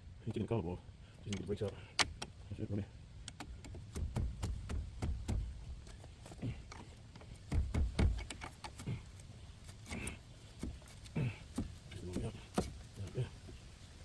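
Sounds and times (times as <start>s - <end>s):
heavier metal thuds: 3.8s - 8.9s.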